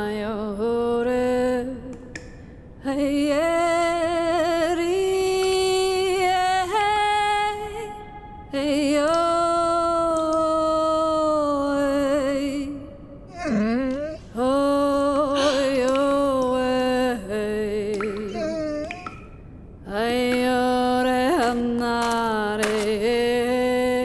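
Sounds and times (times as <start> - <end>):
woman singing with vibrato: 0.0 - 24.0.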